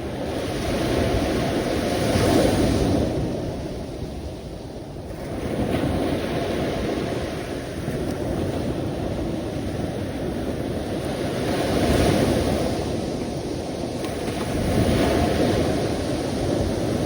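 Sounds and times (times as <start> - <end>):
sea waves washing in: 5.2 - 17.0.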